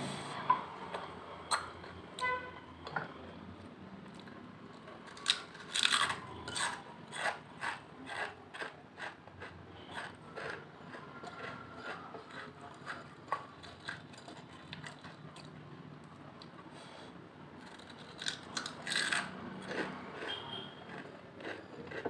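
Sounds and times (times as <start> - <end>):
chewing crisp chips: 3.6 - 16.6, 17.6 - 22.0.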